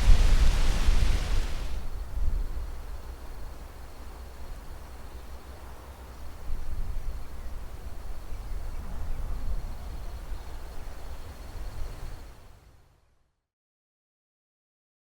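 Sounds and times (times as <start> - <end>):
wind buffeting microphone: 0.0 - 3.0.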